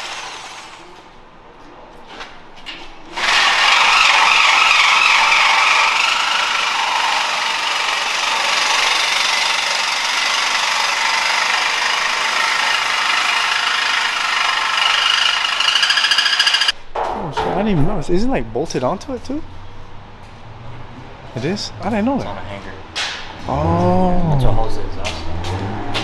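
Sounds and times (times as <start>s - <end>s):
power tool cutting steel pipe: 3.2s - 16.8s.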